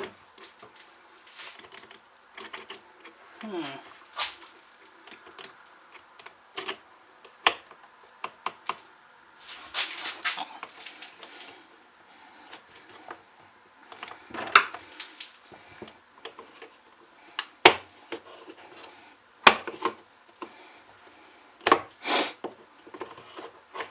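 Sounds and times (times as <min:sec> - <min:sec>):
scraping rustles: 0:00.0 - 0:06.9, 0:09.3 - 0:11.8, 0:22.7 - 0:23.9
tools handled on workbench: 0:09.4 - 0:11.7.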